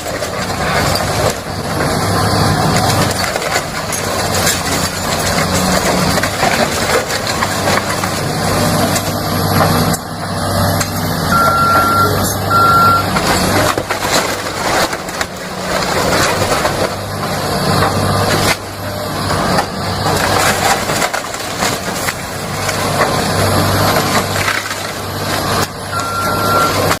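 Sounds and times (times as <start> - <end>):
falling debris: 0.0 - 10.0, 10.7 - 27.0
walls and timber cracking: 0.0 - 10.0, 13.1 - 25.8
excavator engine running: 0.0 - 27.0
alarm beep: 11.3 - 13.1, 26.0 - 26.8.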